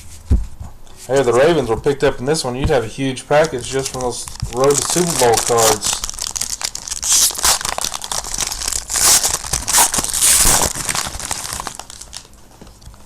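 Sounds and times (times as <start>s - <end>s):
wrapper tearing and crinkling: 3.4s - 13.0s.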